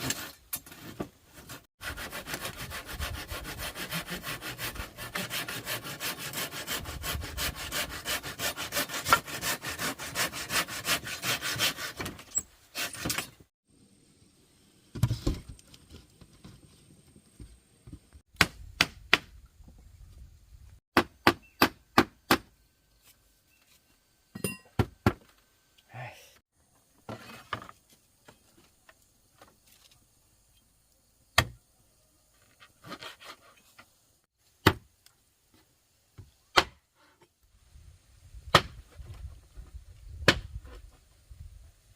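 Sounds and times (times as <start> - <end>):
fast strokes on wood: 1.4 - 12.1.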